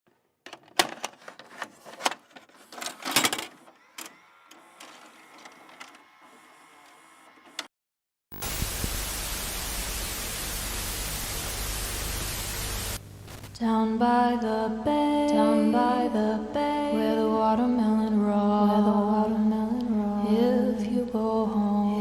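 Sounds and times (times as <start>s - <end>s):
static hiss: 8.3s - 13.6s.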